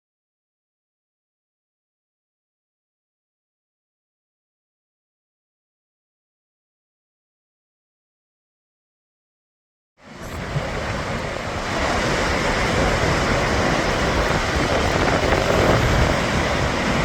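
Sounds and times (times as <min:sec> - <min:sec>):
waterfall rushing: 0:10.1 - 0:17.0
wind buffeting microphone: 0:10.1 - 0:17.0.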